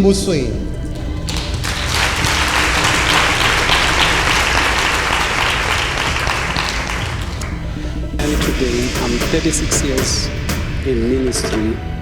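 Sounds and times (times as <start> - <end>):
audience applauding: 0.7 - 10.0.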